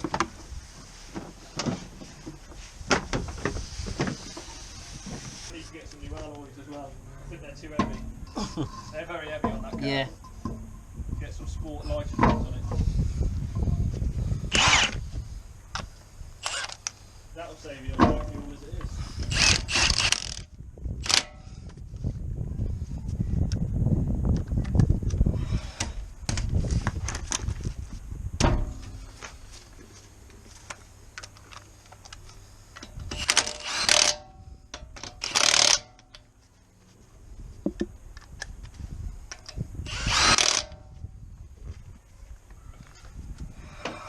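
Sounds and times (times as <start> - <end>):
metallic clanks and knocks: 7.7 - 10.8, 12.0 - 12.7
power tool bursts: 14.5 - 15.0, 16.4 - 16.8, 19.3 - 20.4, 33.1 - 34.2, 35.2 - 35.8, 39.8 - 40.8.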